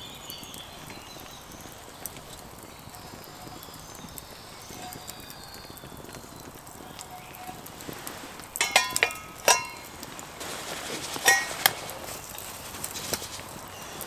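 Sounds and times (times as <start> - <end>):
metal cookware knocking and clinking: 8.6 - 9.9, 11.2 - 11.8.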